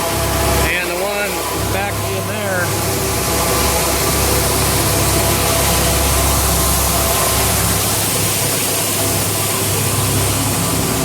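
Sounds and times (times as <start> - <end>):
grain auger running: 0.0 - 11.0
corn pouring into bin: 3.5 - 11.0.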